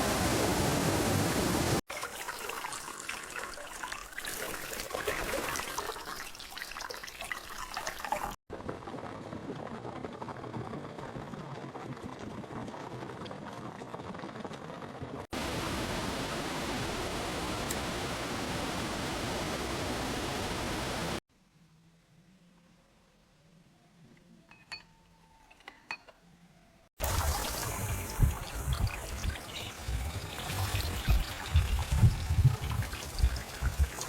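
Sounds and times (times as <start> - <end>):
steady rain-like hiss: 0.0 - 1.8, 15.4 - 21.2
water running and splashing: 0.0 - 8.4, 27.0 - 34.0.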